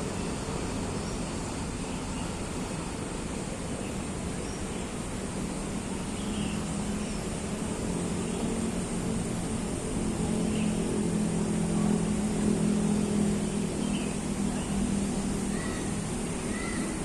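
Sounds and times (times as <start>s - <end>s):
low engine drone: 0.0s - 17.0s
faint bird chirps: 13.6s - 17.0s.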